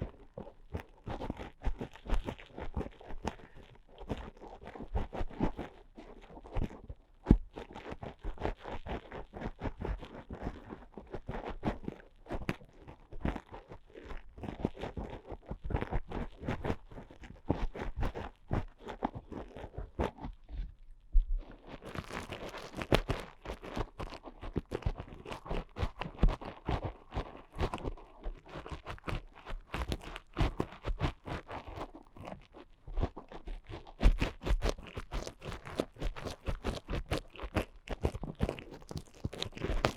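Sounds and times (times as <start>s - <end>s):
ear picks scratching microphone: 15.7s - 39.9s.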